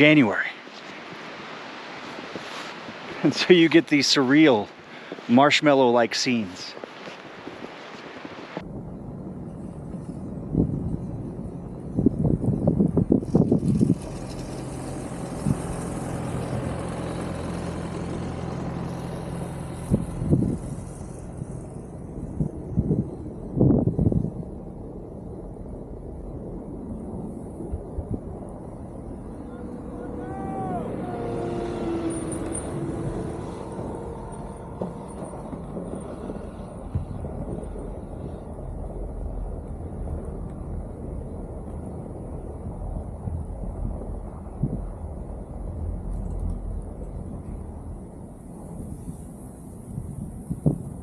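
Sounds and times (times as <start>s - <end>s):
rushing noise: 0.0s - 51.0s
vehicle engine running: 13.3s - 22.4s, 28.7s - 49.7s.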